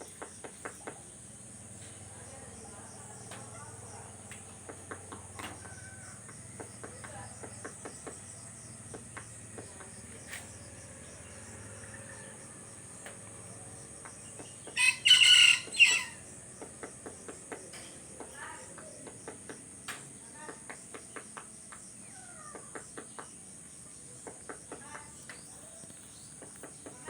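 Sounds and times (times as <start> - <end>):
insects droning: 0.0 - 27.0
rooster crowing: 5.6 - 6.4, 14.7 - 16.3.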